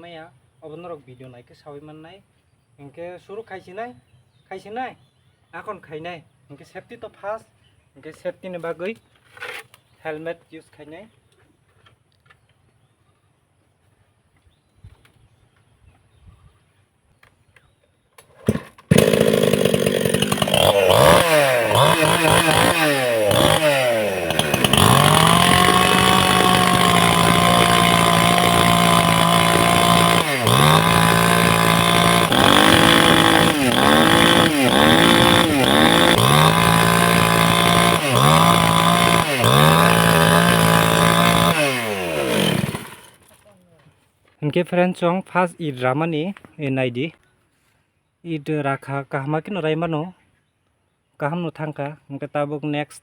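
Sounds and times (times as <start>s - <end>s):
chainsaw engine revving: 18.3s - 43.4s.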